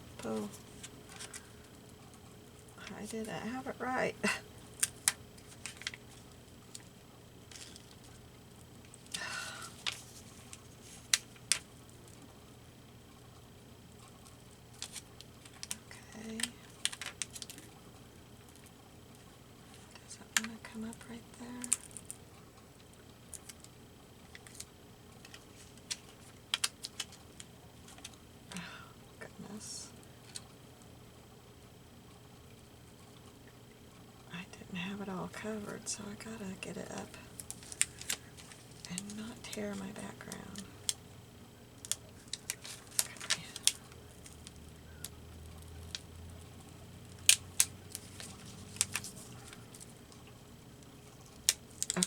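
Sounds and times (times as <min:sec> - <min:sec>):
faint low hum: 0:00.0 - 0:52.0
paper clicking and crackling: 0:00.2 - 0:01.7, 0:04.7 - 0:08.2, 0:08.8 - 0:12.3, 0:14.0 - 0:17.8, 0:19.6 - 0:22.2, 0:22.8 - 0:28.2, 0:37.2 - 0:41.0, 0:41.8 - 0:52.0
paper being handled: 0:42.2 - 0:44.4, 0:47.4 - 0:49.9.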